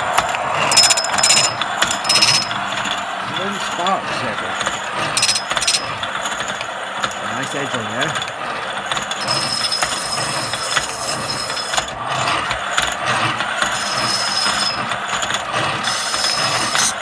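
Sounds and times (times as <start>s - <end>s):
thin high whine: 0.0s - 6.2s, 13.7s - 15.0s
treadle grinder rattling and clicking: 0.0s - 17.0s.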